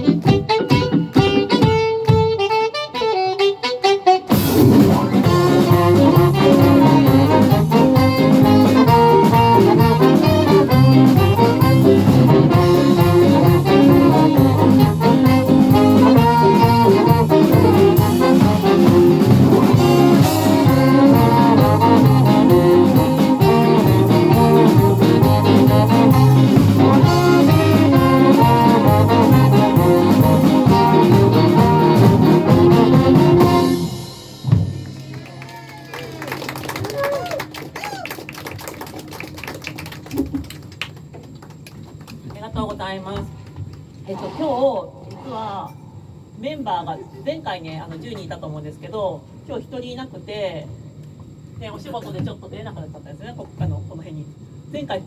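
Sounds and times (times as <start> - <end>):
live band playing pop song: 0.0 - 2.7, 4.3 - 34.6.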